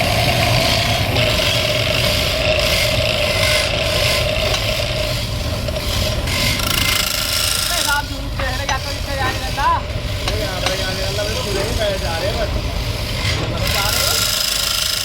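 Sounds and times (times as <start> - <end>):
power tool motor whine: 0.0 - 8.0
abrasive rasping on wood: 0.0 - 15.0.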